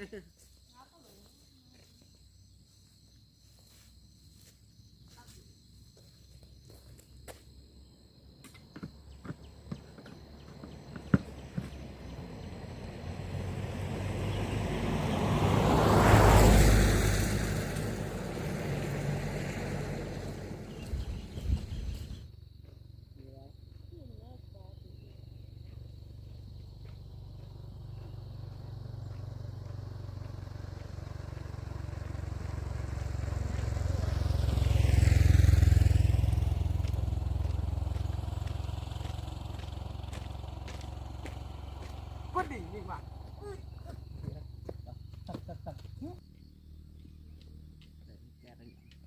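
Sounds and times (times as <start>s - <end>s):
vehicle passing by: 9.0s - 22.3s, 24.4s - 49.0s
small motorcycle engine running: 25.6s - 44.2s.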